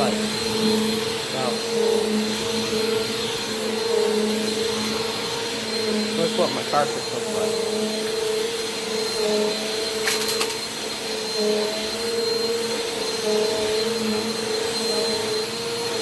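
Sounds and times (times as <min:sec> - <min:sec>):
vacuum cleaner running: 0:00.0 - 0:16.0
quick clicks: 0:10.0 - 0:10.7.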